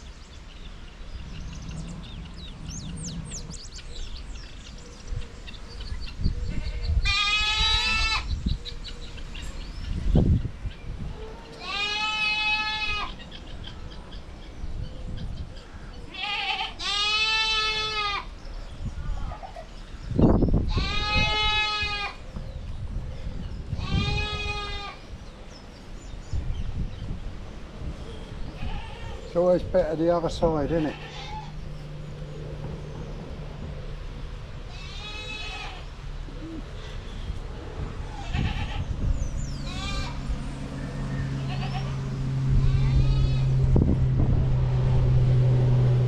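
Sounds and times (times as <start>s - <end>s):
goats bleating: 6.5s - 8.3s, 11.6s - 13.2s, 16.1s - 18.3s, 20.7s - 22.2s, 23.8s - 25.0s, 28.5s - 29.3s, 30.3s - 31.6s, 34.7s - 35.9s, 38.2s - 38.9s, 39.6s - 40.2s, 41.4s - 42.0s, 42.6s - 43.6s.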